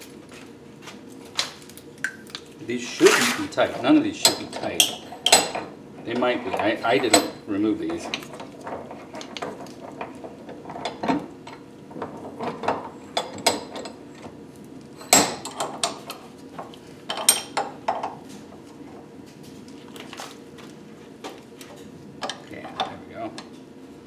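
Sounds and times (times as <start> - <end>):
metal tools clinking: 3.0 - 5.5.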